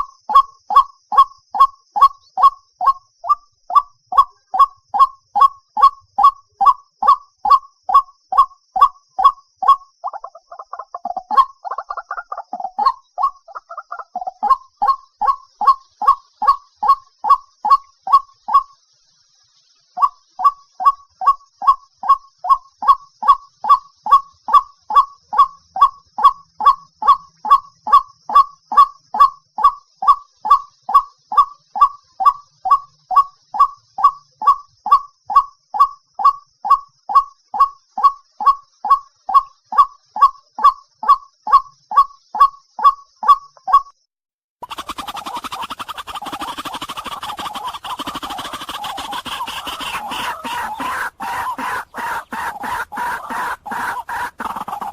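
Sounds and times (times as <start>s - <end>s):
waterhen kwak call: 44.6s - 54.9s.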